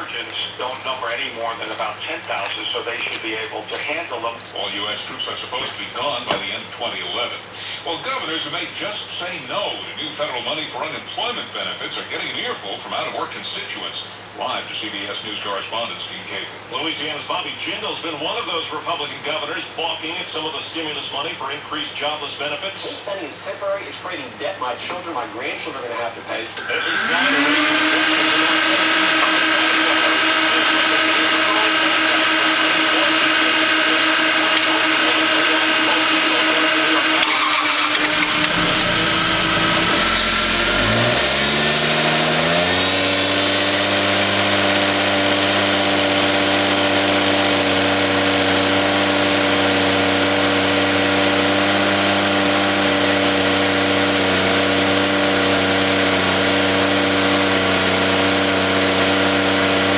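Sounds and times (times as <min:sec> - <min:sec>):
steady whine: 0:00.0 - 0:21.6, 0:22.4 - 0:59.9
car engine rumbling: 0:26.8 - 0:59.3.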